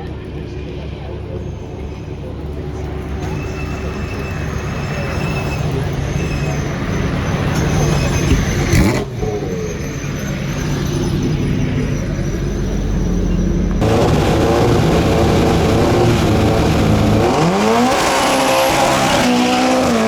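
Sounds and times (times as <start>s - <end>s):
racing car engine accelerating: 13.8s - 20.0s.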